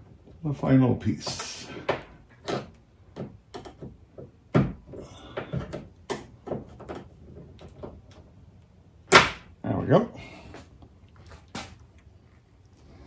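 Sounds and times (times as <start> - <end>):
tools clicking and knocking on metal: 1.3 - 8.3.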